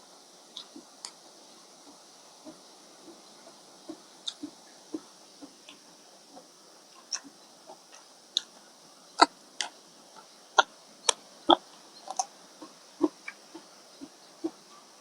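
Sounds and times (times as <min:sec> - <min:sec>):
mouth chewing: 0:03.9 - 0:05.1, 0:07.0 - 0:08.5, 0:10.6 - 0:14.6.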